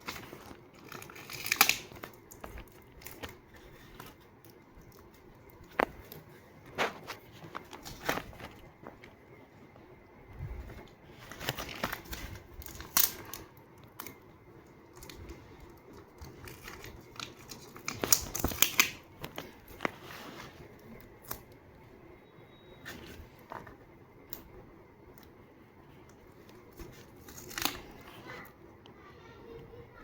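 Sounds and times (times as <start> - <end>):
scissors snipping paper: 0.0 - 3.4
paper crinkling and rustling: 0.0 - 9.4, 10.3 - 14.2, 14.8 - 21.6, 26.2 - 28.6.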